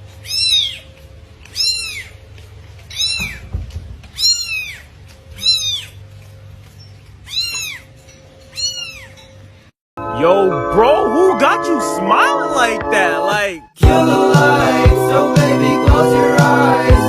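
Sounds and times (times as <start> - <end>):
cat mewing: 0.2 - 0.9, 1.5 - 2.2, 2.9 - 6.0, 7.2 - 9.2.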